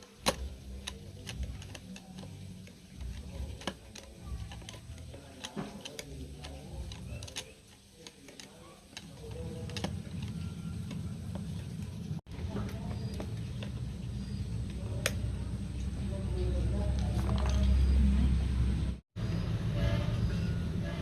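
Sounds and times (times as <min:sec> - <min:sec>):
light clicks and taps: 0:00.0 - 0:13.8.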